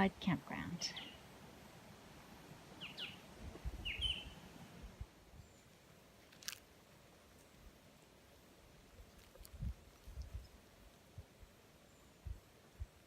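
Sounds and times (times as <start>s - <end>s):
faint bird chirps: 0.9s - 1.3s, 2.8s - 4.4s, 5.3s - 5.8s, 11.8s - 12.5s.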